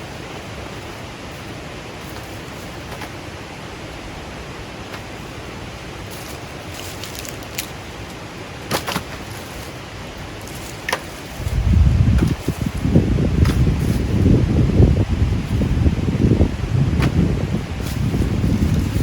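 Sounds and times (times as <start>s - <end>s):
steady rushing outdoor noise: 0.0s - 19.0s
wind buffeting microphone: 0.0s - 19.0s.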